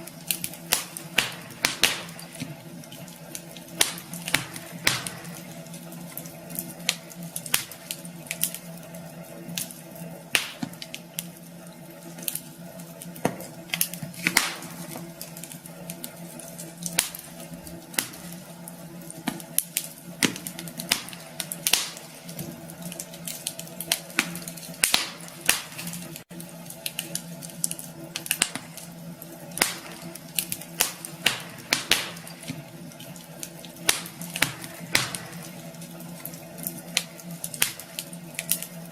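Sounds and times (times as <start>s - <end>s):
steady low hum: 0.0s - 38.9s
wood fire crackling and popping: 0.0s - 38.9s.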